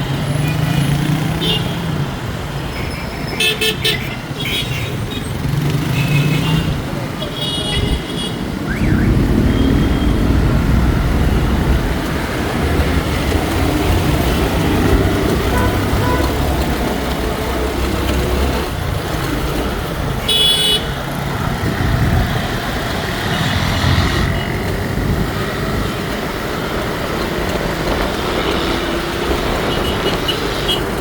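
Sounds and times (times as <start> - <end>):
road traffic: 0.0 - 31.0
wind buffeting microphone: 7.8 - 20.3, 21.0 - 23.3
high-pitched vehicle horn toot: 15.5 - 16.4.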